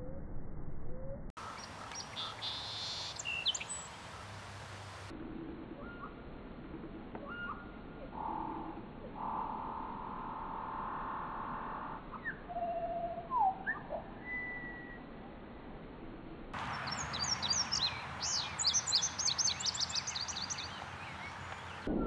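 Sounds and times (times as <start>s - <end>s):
steady bird tone: 0.8s - 4.4s, 5.1s - 6.2s, 7.2s - 15.4s, 16.6s - 22.0s
bird whistled calls: 1.4s - 3.9s, 7.2s - 8.5s, 12.1s - 15.0s, 16.7s - 21.8s.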